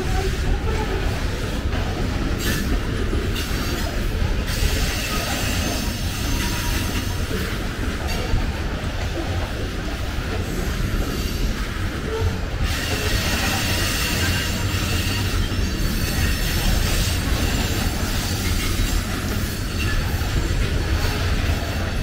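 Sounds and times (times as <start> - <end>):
train wheels rumbling on rail: 0.0 - 22.0
faint high wheel squeal: 4.5 - 7.2, 11.1 - 20.3.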